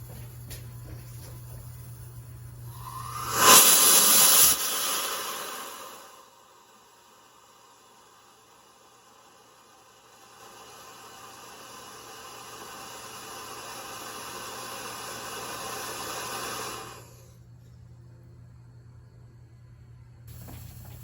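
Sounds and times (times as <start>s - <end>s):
rocket motor hissing: 1.9s - 17.4s.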